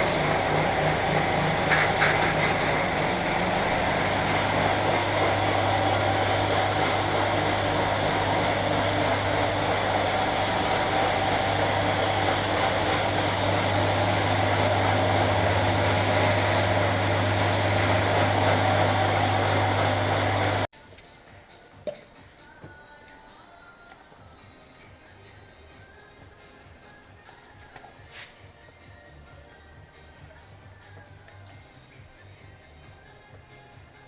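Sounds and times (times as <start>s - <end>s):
spray gun hissing: 0.0s - 4.3s, 7.6s - 20.7s
compressor motor hum and hiss: 0.0s - 20.7s.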